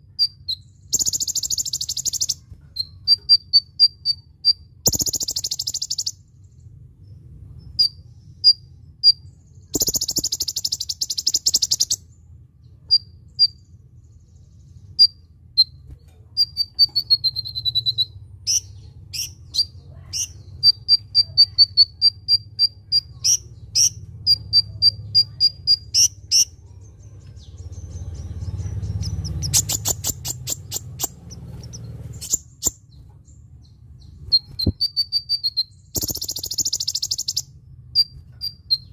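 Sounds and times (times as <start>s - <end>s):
low steady hum: 0.0s - 38.9s
sunbird chirping: 0.0s - 38.9s
rapid buzzy bird trill: 0.1s - 6.2s, 7.7s - 12.1s, 15.0s - 26.7s, 27.5s - 33.0s, 34.1s - 38.9s.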